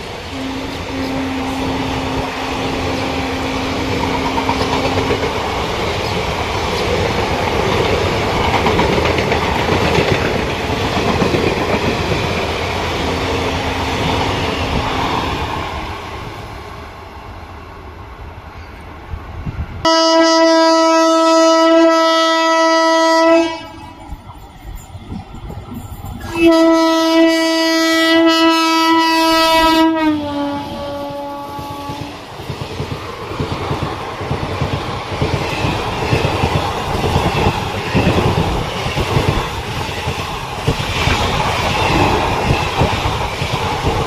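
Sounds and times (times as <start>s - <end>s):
locomotive horn blast: 0.3s - 5.2s, 13.0s - 14.2s, 19.9s - 24.0s, 26.2s - 32.2s
train wheels clattering over rail joints: 3.9s - 12.5s, 31.8s - 44.0s.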